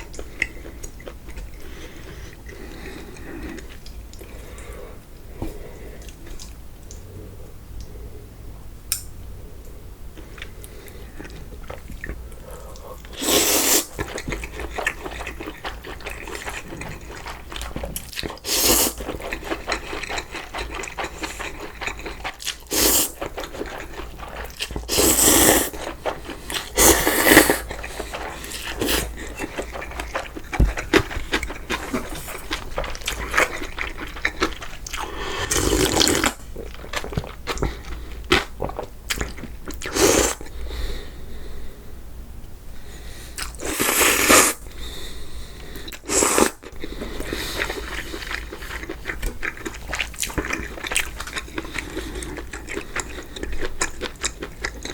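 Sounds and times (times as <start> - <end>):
person chewing noodles: 0.0 - 8.1, 9.6 - 41.0, 43.0 - 54.9
loud slurps: 12.5 - 14.1, 18.4 - 19.1, 22.6 - 23.2, 24.2 - 30.3, 35.0 - 36.4, 39.8 - 40.4, 43.5 - 44.6.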